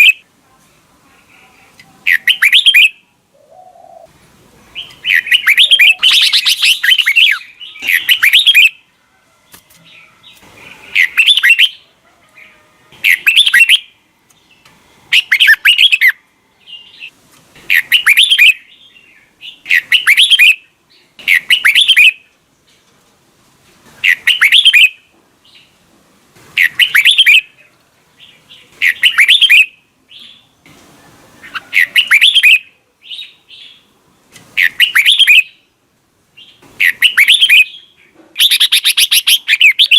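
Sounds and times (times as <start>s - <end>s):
bird singing warbling phrases: 0.0s - 0.3s, 1.2s - 4.1s, 4.7s - 8.8s, 10.0s - 14.0s, 15.1s - 17.1s, 17.7s - 22.3s, 24.0s - 25.8s, 26.6s - 30.6s, 31.4s - 33.9s, 34.6s - 35.7s, 36.4s - 39.9s.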